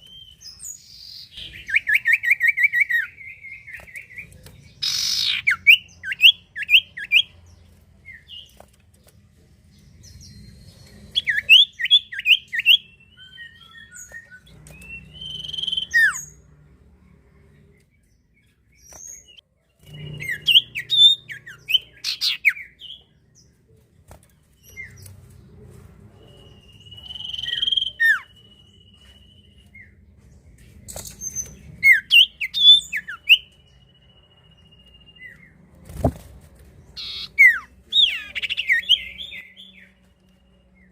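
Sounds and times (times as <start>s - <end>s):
bird chirps and whistles: 4.8s - 7.2s, 11.2s - 16.3s.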